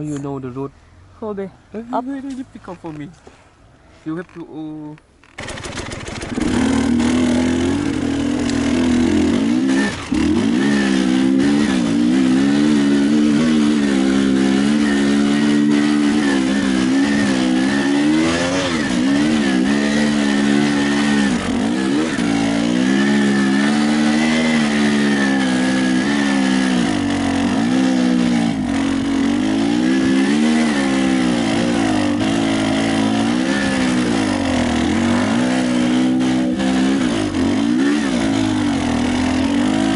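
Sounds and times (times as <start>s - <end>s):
motorcycle engine revving: 5.2s - 39.9s.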